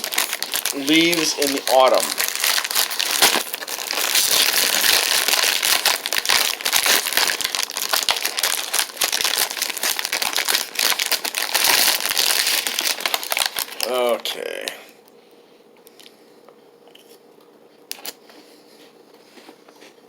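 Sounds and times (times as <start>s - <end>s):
packaging crinkling: 0.0s - 14.0s.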